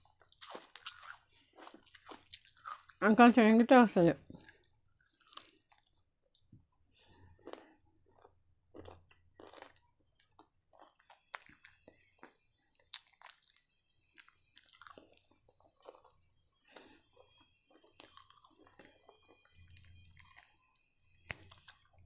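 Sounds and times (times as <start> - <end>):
faint chewing clicks: 7.4 - 22.0.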